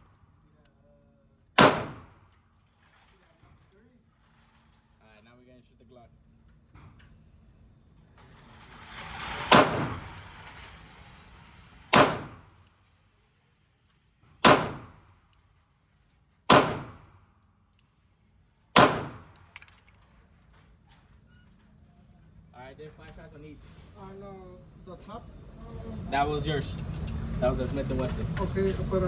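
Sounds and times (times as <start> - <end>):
pistol shots: 1.6 - 2.2, 9.5 - 10.0, 11.9 - 12.5, 14.4 - 15.0, 16.5 - 17.1, 18.8 - 19.6.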